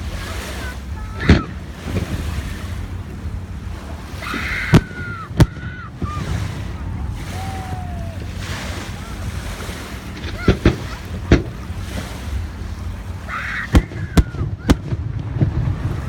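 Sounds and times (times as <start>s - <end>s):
wind rumble on microphone: 0.0s - 16.0s
fireworks bangs: 4.6s - 6.4s, 10.2s - 11.6s, 13.7s - 16.0s.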